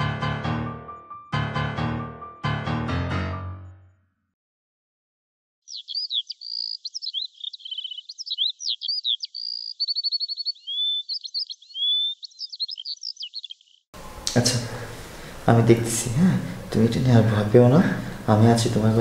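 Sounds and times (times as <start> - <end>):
songbird singing: 5.6 - 15.9.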